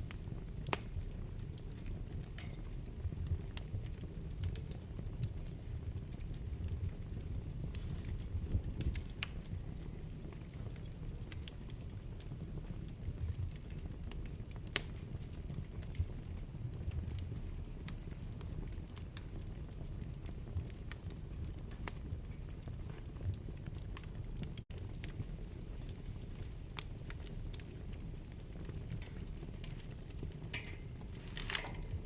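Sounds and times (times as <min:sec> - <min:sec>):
crackles and pops of fire: 0:00.0 - 0:32.0
wood fire burning: 0:00.0 - 0:32.0.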